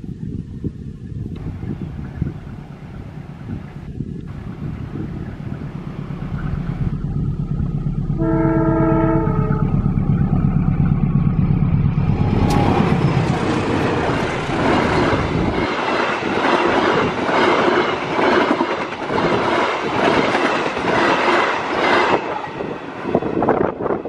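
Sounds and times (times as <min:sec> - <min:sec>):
locomotive engine drone: 0:00.4 - 0:24.0
train wheels clickety-clack: 0:12.0 - 0:24.0.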